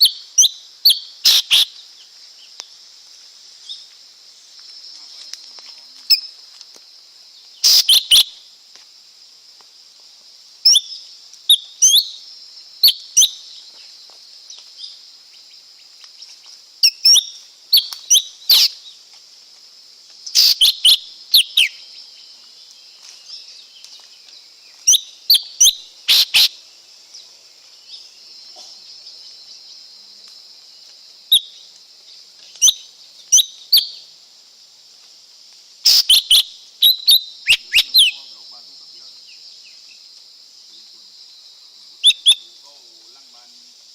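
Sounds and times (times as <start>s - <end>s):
bird whistled chirps: 0.0s - 1.7s, 7.6s - 8.3s, 20.3s - 21.8s, 24.9s - 26.5s, 35.8s - 38.3s, 42.0s - 42.6s
steady high-pitched hiss: 0.0s - 43.9s.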